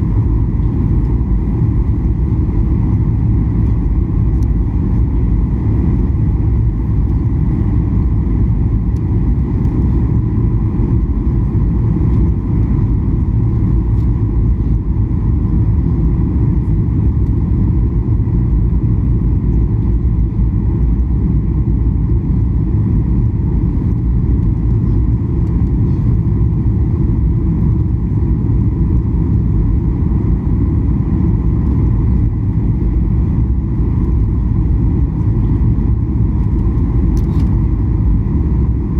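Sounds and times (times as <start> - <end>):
jet engine cabin rumble: 0.0 - 38.9.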